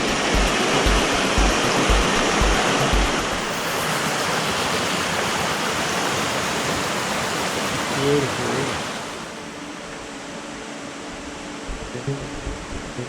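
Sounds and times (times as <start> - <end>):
music with deep kick drum beat: 0.0 - 3.4
falling water rushing: 0.0 - 10.5.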